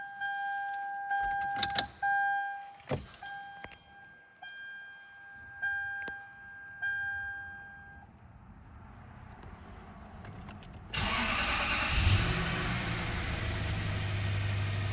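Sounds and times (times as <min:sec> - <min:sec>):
engine cranking: 0:11.0 - 0:14.9.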